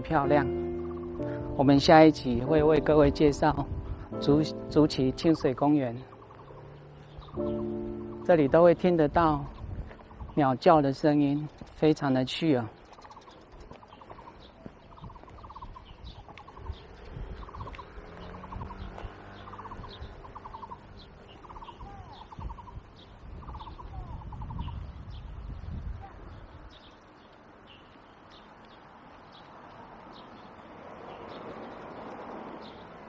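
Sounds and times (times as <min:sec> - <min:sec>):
bird trilling calls: 0:00.0 - 0:01.4, 0:05.4 - 0:10.4, 0:12.8 - 0:24.9.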